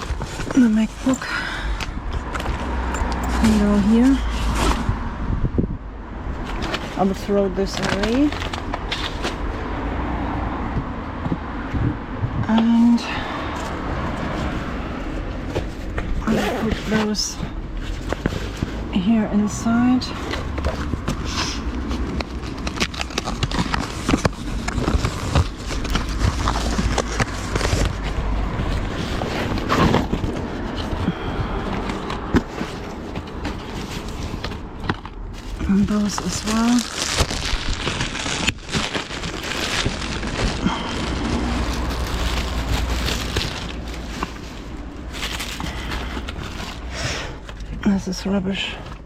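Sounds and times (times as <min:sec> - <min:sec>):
plastic bags crinkling: 0:00.0 - 0:04.8, 0:06.5 - 0:09.5, 0:21.8 - 0:46.9
objects knocking and rustling: 0:00.0 - 0:05.0, 0:20.2 - 0:46.9.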